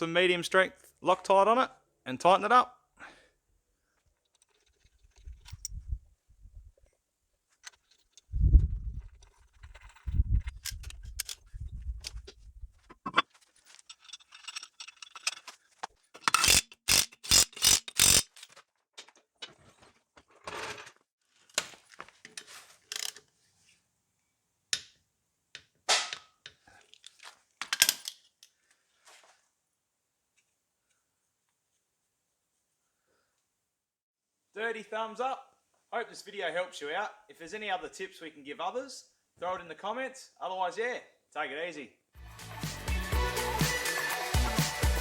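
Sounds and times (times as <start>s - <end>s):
metal clinks and scrapes: 4.3s - 5.8s, 9.0s - 18.7s, 22.3s - 23.2s
socket ratchet strokes: 9.5s - 11.4s, 13.9s - 15.5s, 16.2s - 18.4s, 22.9s - 23.2s.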